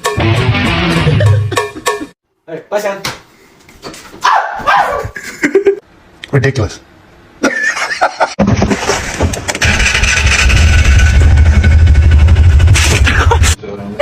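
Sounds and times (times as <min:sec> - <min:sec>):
engine rumbling: 0:09.2 - 0:13.6.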